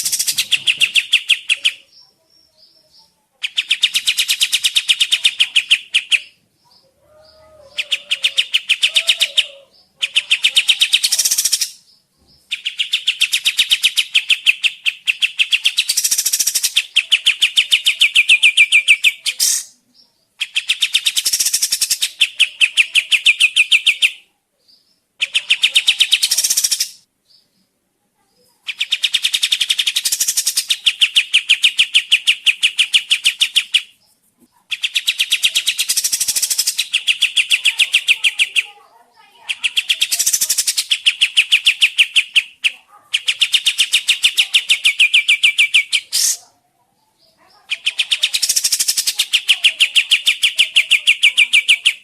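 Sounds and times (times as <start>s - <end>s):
songbird fast rattling song: 0.0s - 2.0s, 3.4s - 6.4s, 7.8s - 19.8s, 20.4s - 24.2s, 25.2s - 27.1s, 28.6s - 46.5s, 47.2s - 52.0s.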